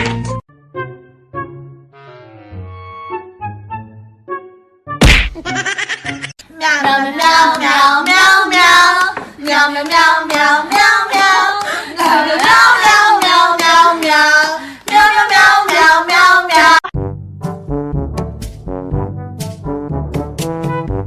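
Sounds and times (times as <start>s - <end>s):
brass band music: 1.8s - 4.4s, 17.0s - 21.0s.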